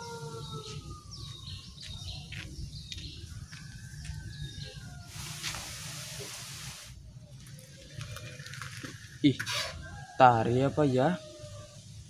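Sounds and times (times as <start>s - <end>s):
birds chirping: 0.0s - 6.4s
rush of hiss: 5.1s - 7.0s.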